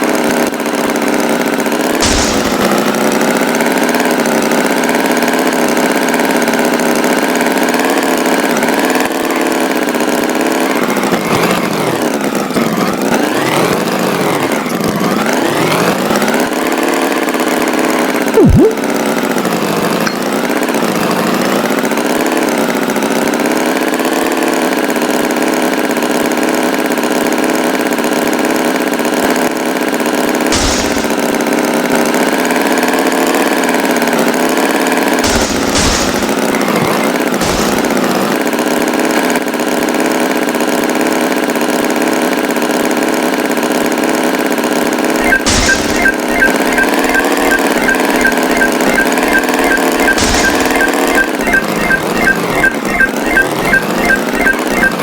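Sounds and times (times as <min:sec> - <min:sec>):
tractor engine running: 0:00.0 - 0:26.2, 0:27.1 - 0:32.8, 0:34.0 - 0:55.0
sharp knock: 0:02.0 - 0:02.8, 0:45.2 - 0:55.0.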